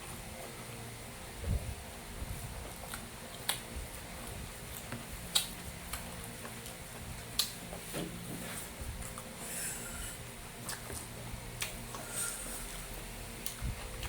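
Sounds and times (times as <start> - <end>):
person chewing food: 2.6 - 7.9, 9.0 - 14.0.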